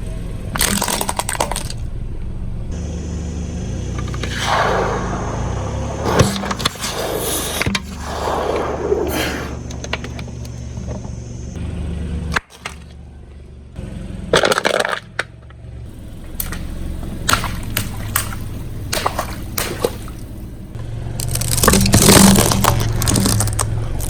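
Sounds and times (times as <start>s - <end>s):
car engine hum: 0.0s - 24.0s
sharp snaps and cracks: 0.5s - 1.8s, 14.4s - 24.0s
tyre crunching objects: 21.2s - 24.0s.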